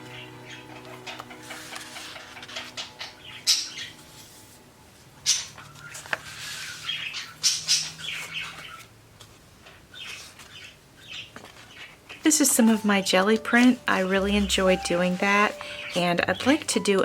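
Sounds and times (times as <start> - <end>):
paper rustling and crackling: 5.5 - 7.2, 8.0 - 13.8.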